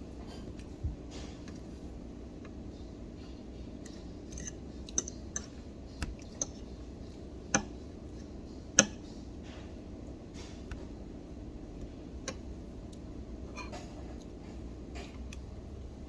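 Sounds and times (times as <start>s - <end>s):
restaurant room noise: 0.0s - 16.0s
dishes and utensils clinking: 13.5s - 15.2s.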